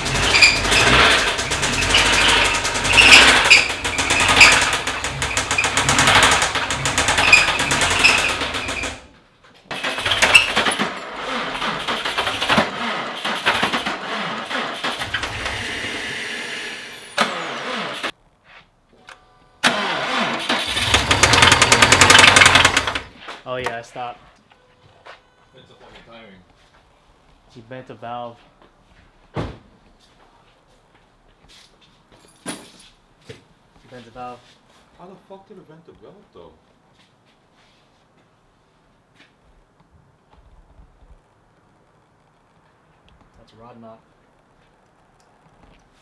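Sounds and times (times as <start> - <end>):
car engine cranking on starter: 0.0 - 9.1, 9.7 - 18.1, 19.6 - 23.1.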